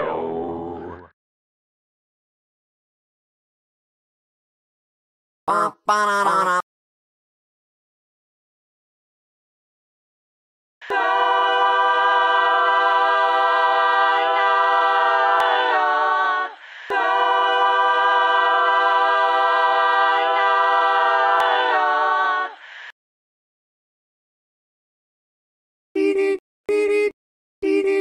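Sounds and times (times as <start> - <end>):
voices singing a cappella: 10.8 - 22.9, 26.0 - 28.0.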